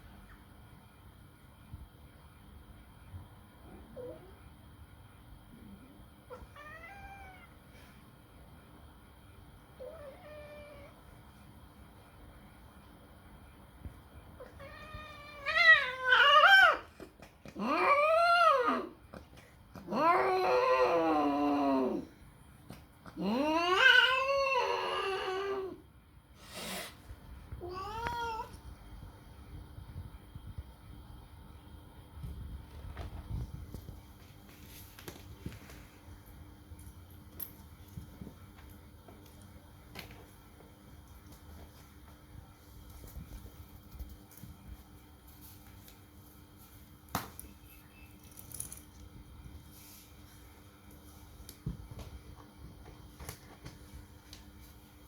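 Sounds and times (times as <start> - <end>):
cat yowling: 6.3 - 7.5, 14.6 - 16.8, 23.2 - 25.8.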